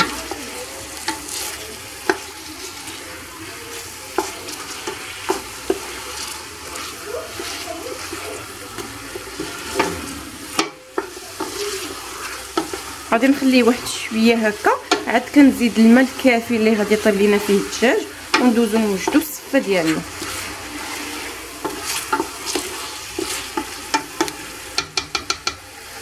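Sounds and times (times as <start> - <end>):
food sizzling in oil: 0.0 - 26.0
wooden spoon knocking on pot: 7.4 - 11.6, 14.7 - 15.4, 18.3 - 19.4, 21.6 - 25.6.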